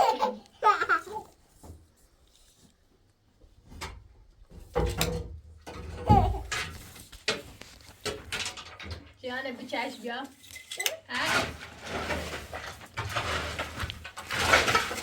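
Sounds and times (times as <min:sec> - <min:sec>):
household knocks and clinks: 0:03.7 - 0:15.0.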